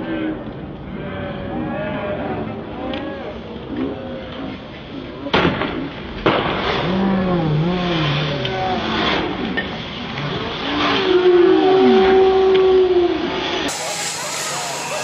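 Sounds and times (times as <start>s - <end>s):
crowd yelling and shouting: 12.0s - 15.0s.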